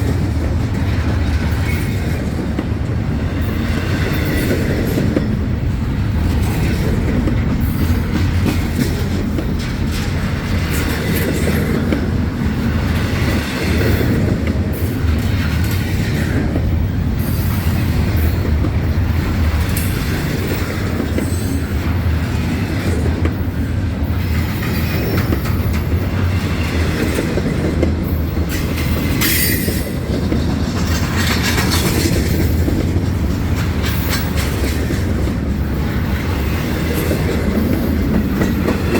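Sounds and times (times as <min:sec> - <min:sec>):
wheels clattering over rail: 0:00.0 - 0:16.7, 0:24.2 - 0:38.9
freight train rumbling: 0:00.0 - 0:38.9
train wheels squealing: 0:03.4 - 0:04.9, 0:23.4 - 0:26.8, 0:28.1 - 0:30.0.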